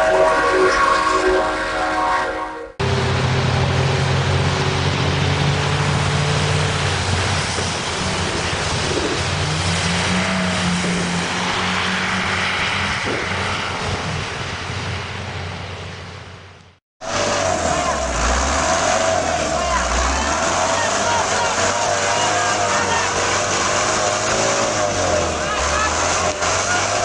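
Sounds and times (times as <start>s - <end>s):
vehicle engine running: 2.8s - 11.8s, 14.0s - 27.0s
loud rushing noise: 17.0s - 27.0s.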